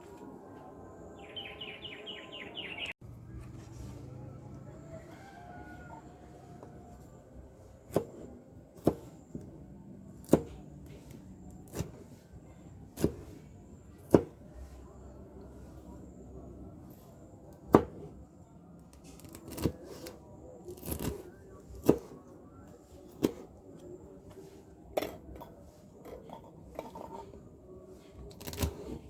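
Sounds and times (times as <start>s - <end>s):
knife chopping on cutting board: 7.8s - 9.5s, 10.2s - 11.1s, 11.7s - 12.0s, 13.0s - 13.4s, 14.1s - 14.4s, 17.7s - 18.1s, 19.2s - 20.2s, 21.8s - 22.2s, 23.1s - 23.5s, 28.4s - 29.0s.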